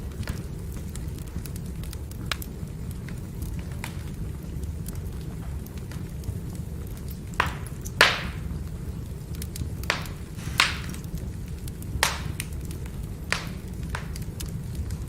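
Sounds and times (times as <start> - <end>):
fire rumbling: 0.0 - 15.0
logs popping: 9.4 - 15.0.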